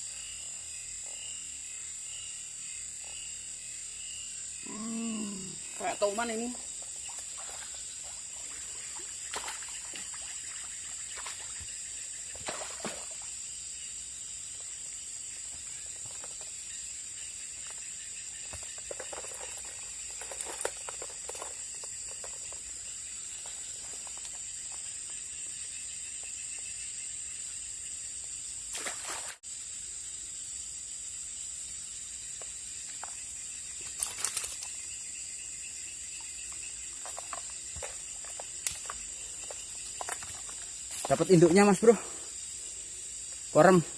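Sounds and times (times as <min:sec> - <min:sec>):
high-pitched insect chorus: 0:00.0 - 0:43.9
water splashes: 0:06.1 - 0:11.7, 0:12.3 - 0:13.4, 0:28.7 - 0:29.4.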